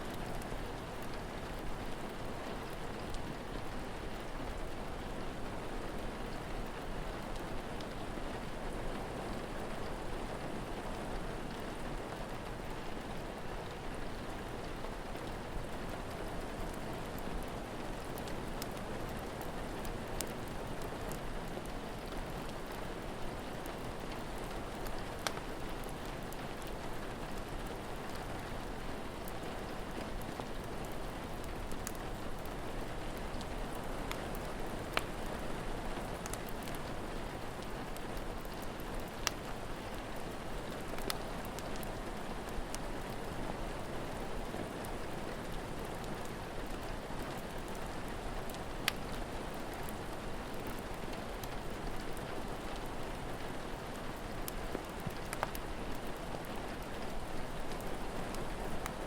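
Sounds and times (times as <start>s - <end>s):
steady rain: 0.0s - 59.0s
wood fire popping: 24.4s - 26.8s, 30.4s - 32.4s, 36.2s - 36.8s, 37.6s - 41.9s, 48.5s - 49.1s, 49.8s - 52.6s, 54.4s - 59.0s.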